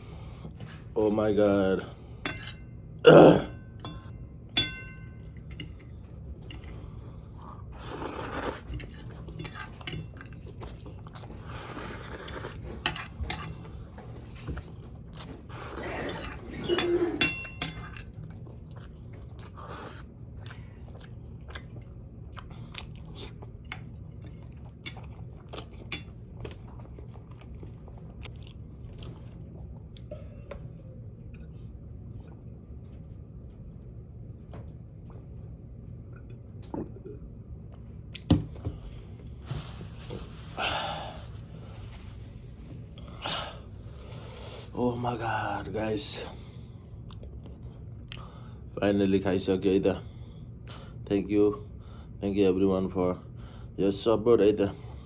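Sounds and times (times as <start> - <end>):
chewing and mouth sounds: 17.8 - 30.2, 47.0 - 48.3.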